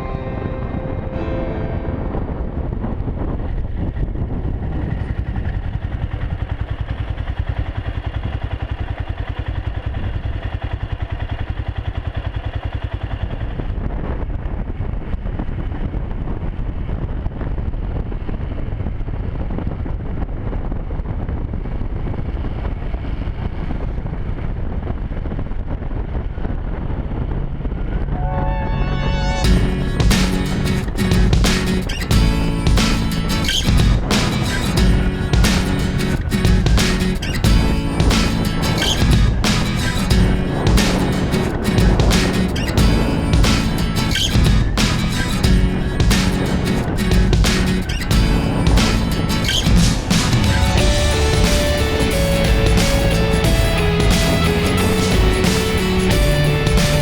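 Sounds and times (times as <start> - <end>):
road and wind noise: 0.0 - 57.0
motorcycle engine running: 4.4 - 19.2, 29.4 - 57.0.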